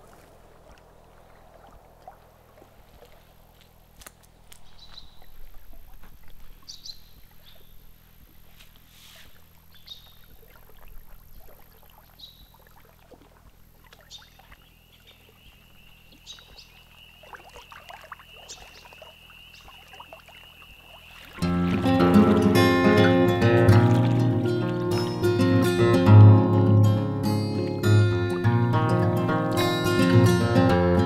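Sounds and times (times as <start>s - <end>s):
water lapping at shore: 0.0s - 31.0s
faint rustles: 2.6s - 9.7s.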